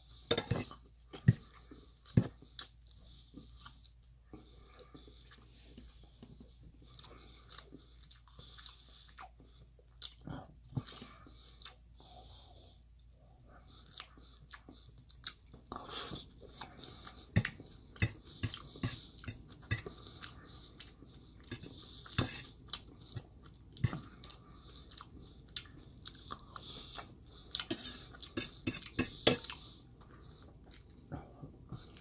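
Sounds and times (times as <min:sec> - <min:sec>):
man chewing: 0:00.0 - 0:32.0
metal fork scraping a bowl: 0:00.3 - 0:00.7, 0:17.4 - 0:19.9, 0:21.5 - 0:22.6, 0:27.7 - 0:29.5.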